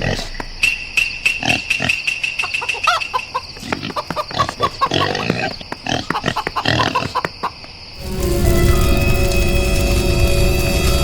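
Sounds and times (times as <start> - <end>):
animal squeals and grunts: 0.0 - 0.5, 1.4 - 7.6.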